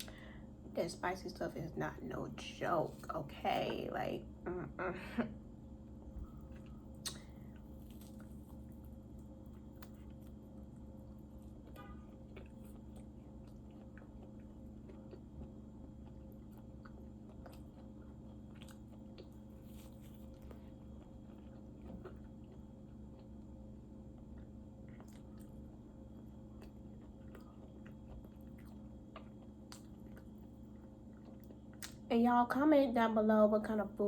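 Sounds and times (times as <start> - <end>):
person chewing food: 5.9 - 32.0.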